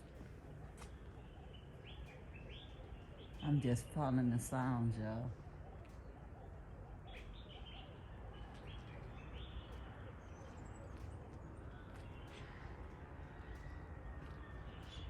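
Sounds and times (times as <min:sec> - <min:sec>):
outdoor background hiss and rumble: 0:00.0 - 0:15.0.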